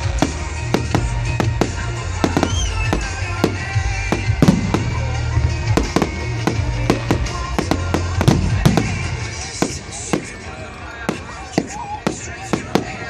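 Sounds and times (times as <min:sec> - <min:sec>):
fireworks bangs: 0:00.0 - 0:13.0
music with steady bass: 0:00.0 - 0:13.0
firework whistle: 0:02.3 - 0:03.2.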